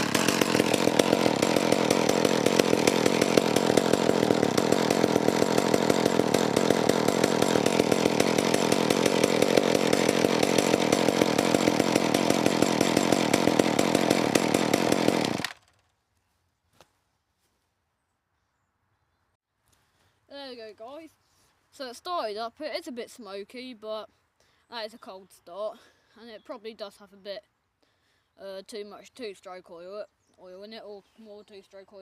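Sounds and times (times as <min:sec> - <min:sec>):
chainsaw engine running: 0:00.0 - 0:15.8.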